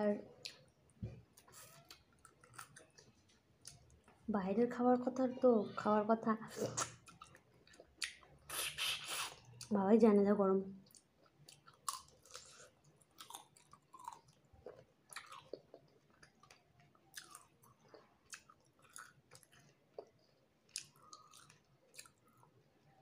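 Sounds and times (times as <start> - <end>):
person chewing with mouth clicks: 6.6 - 9.7, 10.8 - 22.5.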